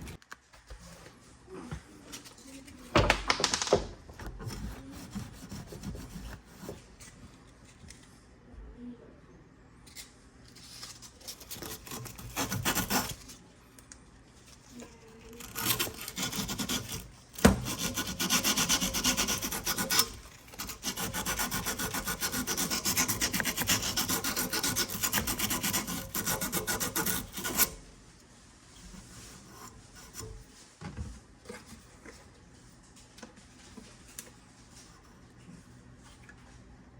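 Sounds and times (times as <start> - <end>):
scraping on metal tubing: 11.4 - 13.3, 15.3 - 27.8, 28.9 - 30.6.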